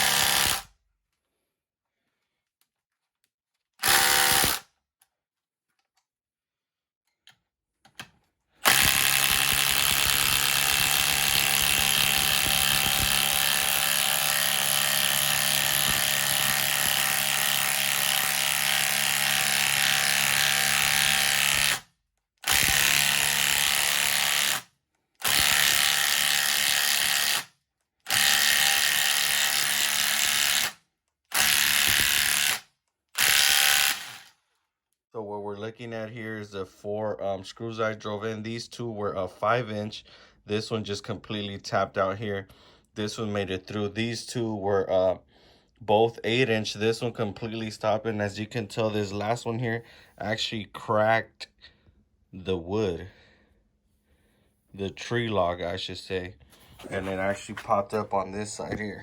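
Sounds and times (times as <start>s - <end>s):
impact driver driving screws into wood: 0.0s - 0.7s, 3.8s - 4.7s, 8.6s - 27.5s, 28.1s - 34.3s.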